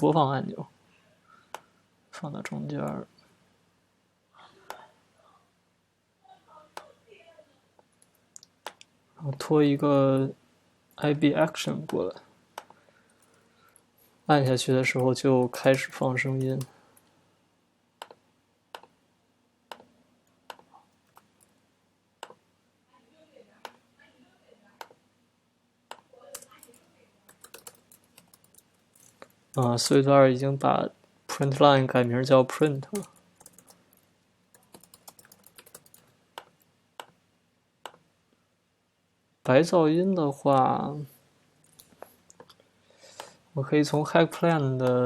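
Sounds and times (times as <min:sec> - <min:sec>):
keyboard and mouse clicks: 0:14.9 - 0:16.7, 0:18.0 - 0:19.0, 0:19.7 - 0:19.9, 0:20.5 - 0:21.5, 0:22.2 - 0:22.4, 0:25.9 - 0:29.7, 0:32.9 - 0:33.8, 0:34.5 - 0:37.2, 0:37.8 - 0:38.0.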